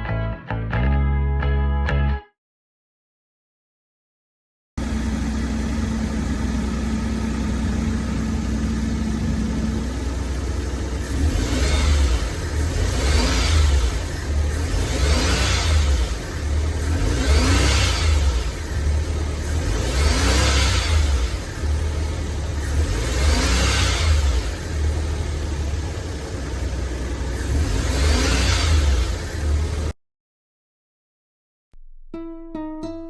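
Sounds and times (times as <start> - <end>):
small engine idling and revving: 4.8 - 30.0.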